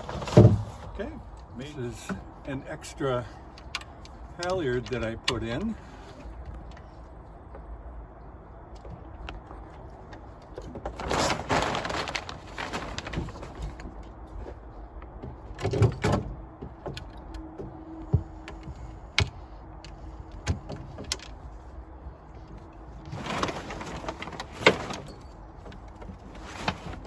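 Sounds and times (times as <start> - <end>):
rustling: 10.7 - 14.6, 22.4 - 27.0.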